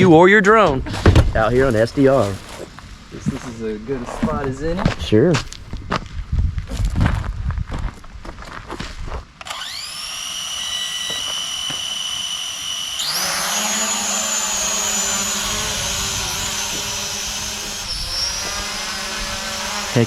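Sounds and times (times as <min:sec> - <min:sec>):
drone propellers whining: 0:09.4 - 0:20.0.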